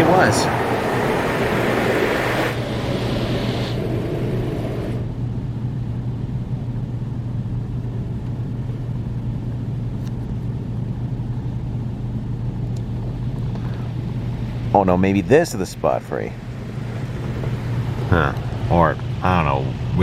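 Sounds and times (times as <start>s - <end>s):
water spraying onto car: 0.0s - 5.0s, 16.2s - 18.7s
steady low hum: 0.0s - 20.0s.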